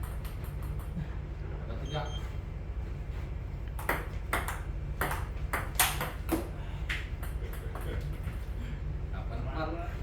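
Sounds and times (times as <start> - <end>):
ping pong ball clicking off paddles: 0.0 - 1.0, 3.7 - 8.3.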